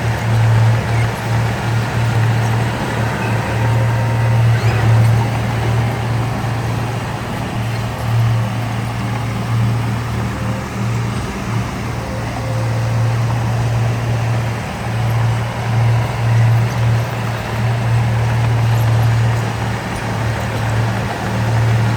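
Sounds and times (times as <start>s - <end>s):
heavy machinery diesel engine: 0.0s - 21.9s.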